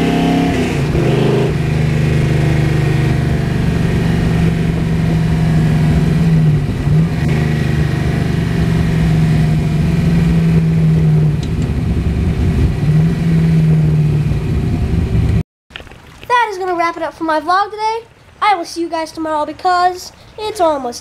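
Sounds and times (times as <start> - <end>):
car engine running: 0.0 - 15.4.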